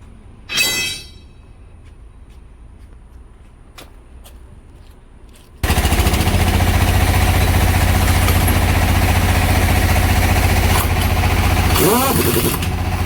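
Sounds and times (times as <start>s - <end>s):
engine running with low hum: 5.6s - 13.0s.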